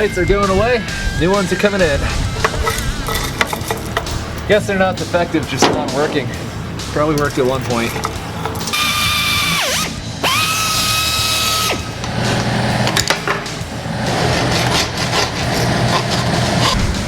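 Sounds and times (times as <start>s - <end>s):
power drill whining: 8.7s - 13.1s.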